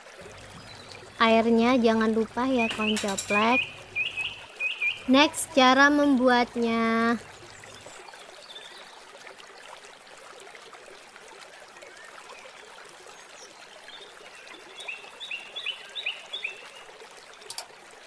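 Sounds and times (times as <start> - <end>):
bird chirping: 2.5 - 5.1.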